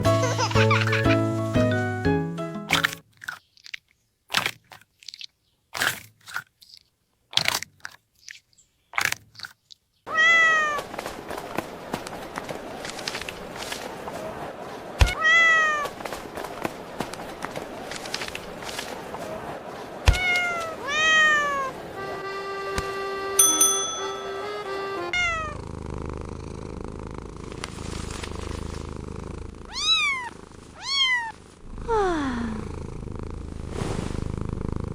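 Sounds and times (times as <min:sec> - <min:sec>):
held musical notes: 0:00.0 - 0:02.8, 0:22.0 - 0:25.2
crunching bites: 0:02.7 - 0:09.9
cat meowing: 0:10.1 - 0:10.8, 0:15.1 - 0:15.9, 0:20.1 - 0:21.7, 0:25.2 - 0:25.6, 0:29.7 - 0:31.4
cat purring: 0:25.2 - 0:34.9.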